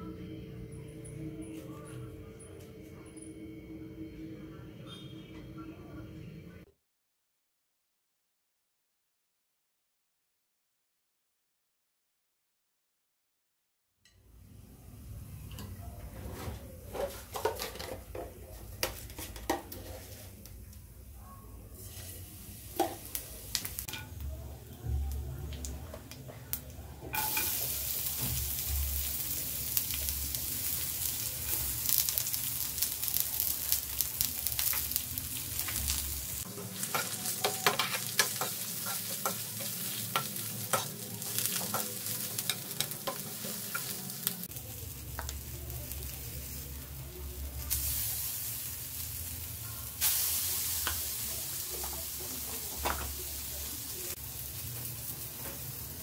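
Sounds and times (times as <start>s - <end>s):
metal spoon scraping a pan: 16.4s - 18.2s, 27.2s - 27.8s, 36.5s - 44.0s
onions and spices sizzling in pan: 16.4s - 56.0s.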